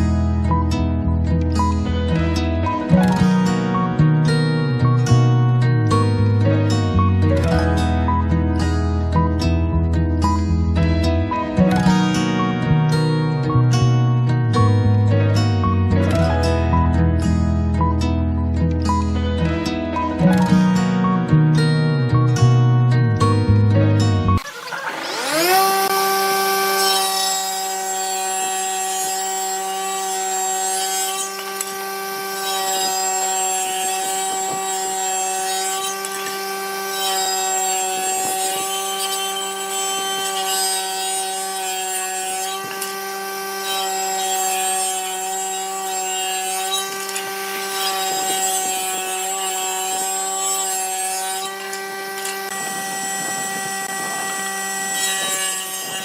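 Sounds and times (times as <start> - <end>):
power tool motor running: 1.6 - 8.4, 10.3 - 13.6, 24.3 - 56.0.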